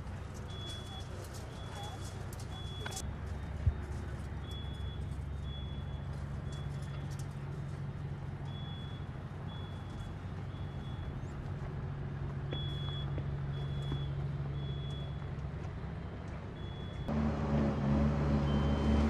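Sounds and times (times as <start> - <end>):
engine humming: 0.0 - 19.0
reversing alarm beeping: 0.5 - 3.0, 4.4 - 7.0, 8.4 - 11.3, 12.5 - 15.2, 16.6 - 17.1, 18.3 - 19.0.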